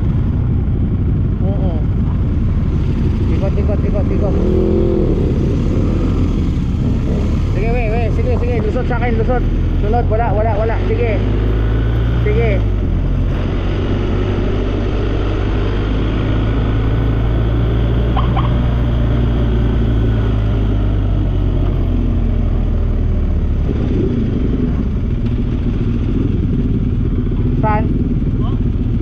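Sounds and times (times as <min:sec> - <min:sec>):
motorcycle engine running: 0:00.0 - 0:29.0
road noise: 0:00.0 - 0:29.0
wind noise: 0:04.2 - 0:10.4.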